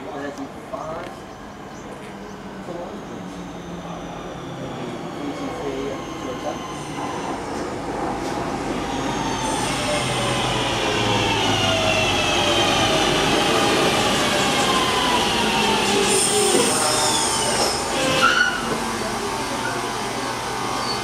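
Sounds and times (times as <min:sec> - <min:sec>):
train braking whine: 0:02.2 - 0:07.5, 0:08.7 - 0:21.0
high brake squeals: 0:03.3 - 0:07.3, 0:16.0 - 0:18.8, 0:20.6 - 0:21.0.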